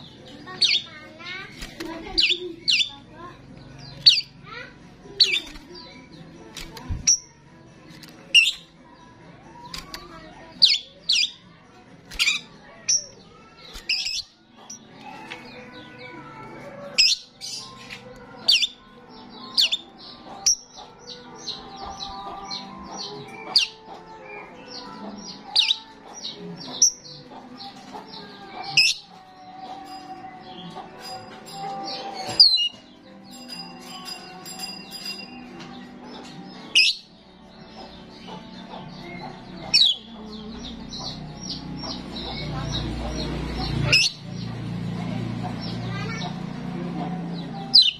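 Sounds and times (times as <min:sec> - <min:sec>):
starling singing: 0:00.0 - 0:47.9.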